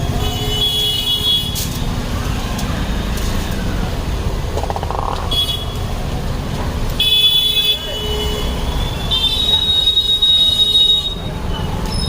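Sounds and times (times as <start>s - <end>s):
road traffic passing: 0.0s - 9.0s.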